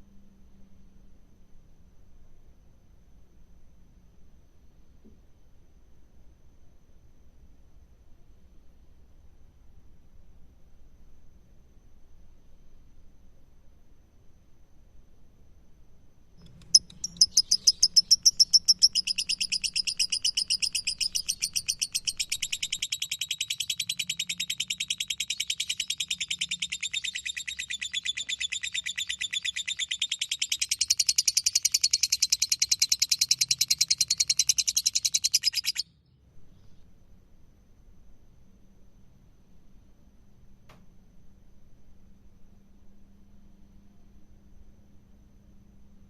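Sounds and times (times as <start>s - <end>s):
lovebird chattering trill: 16.4s - 35.9s.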